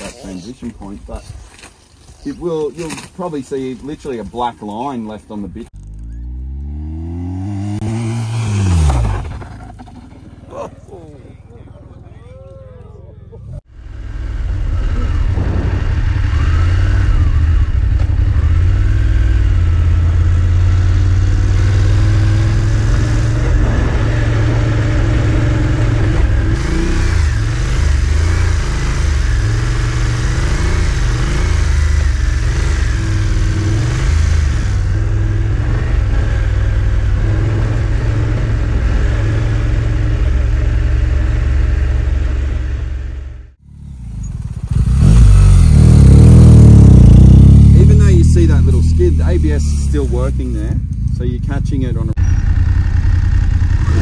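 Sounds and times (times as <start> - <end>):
motorcycle engine running: 5.8 - 12.6, 13.2 - 54.0.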